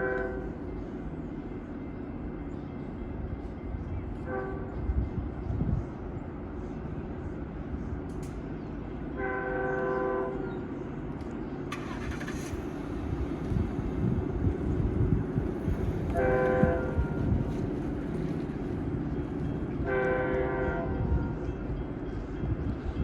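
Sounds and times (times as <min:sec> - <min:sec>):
locomotive air horn blasts: 0:00.0 - 0:00.6, 0:04.3 - 0:04.8, 0:09.2 - 0:10.5, 0:16.0 - 0:17.4, 0:19.8 - 0:21.4
passing train rumble: 0:00.0 - 0:23.0.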